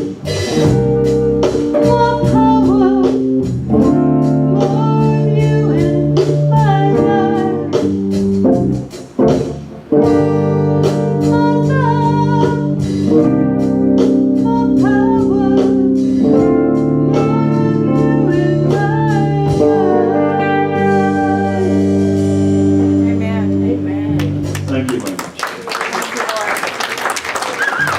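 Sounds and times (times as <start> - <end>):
organ-like chords: 0.0 - 11.4.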